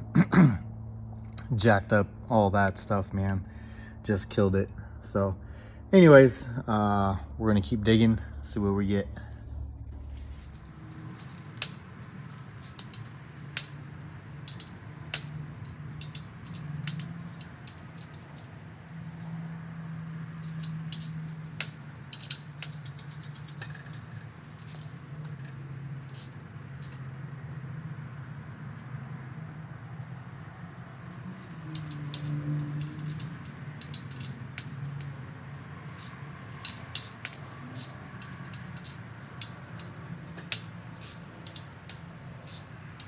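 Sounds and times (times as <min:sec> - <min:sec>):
steady low hum: 0:00.0 - 0:43.0
hand tools clicking on metal: 0:10.2 - 0:19.4, 0:20.4 - 0:27.2, 0:30.8 - 0:35.2, 0:35.8 - 0:43.0.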